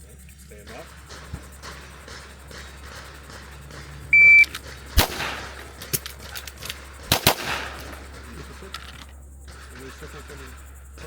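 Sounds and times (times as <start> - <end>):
pistol shots: 1.5 - 9.9
shot timer beep: 4.2 - 4.5.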